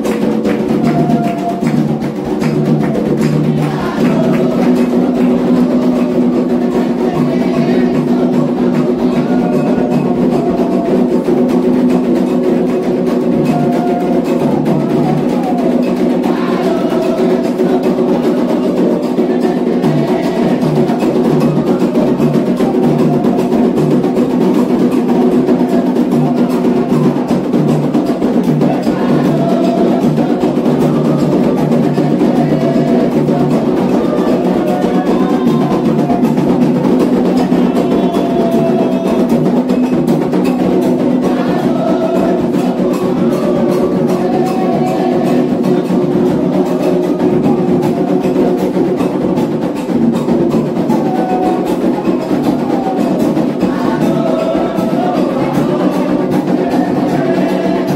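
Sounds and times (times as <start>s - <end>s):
hand drums playing fast rhythm: 0.0s - 57.9s
voices singing a chant: 0.0s - 57.9s.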